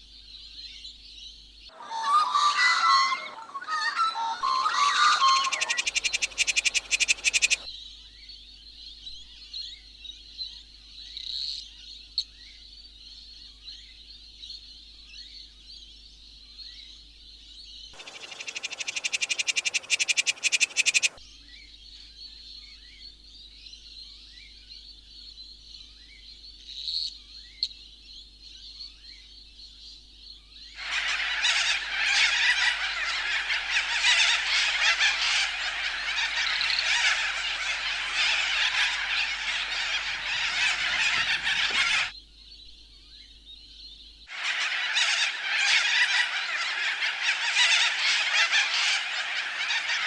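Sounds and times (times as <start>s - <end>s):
high-pitched animal chorus chirps: 1.8s - 7.7s, 18.0s - 21.2s, 30.8s - 42.1s, 44.3s - 50.0s
loud rapid pulsing animal call: 4.4s - 7.7s, 18.0s - 21.2s, 30.8s - 42.1s.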